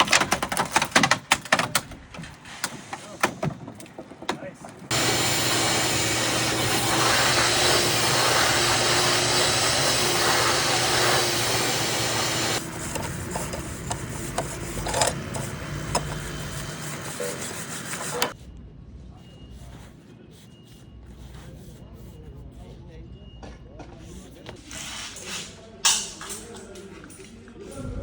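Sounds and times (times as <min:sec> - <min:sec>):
knocks and clicks of construction: 0:00.0 - 0:06.5, 0:12.2 - 0:18.4
power tool rasping under load: 0:04.9 - 0:18.4.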